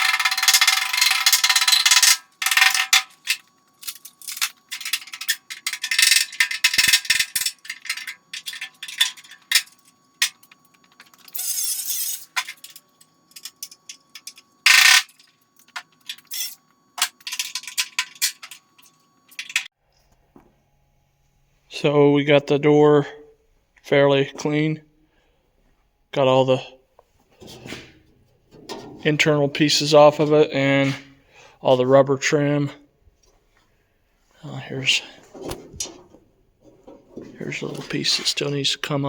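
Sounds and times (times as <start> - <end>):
electric welder crackling: 0.0 - 19.6.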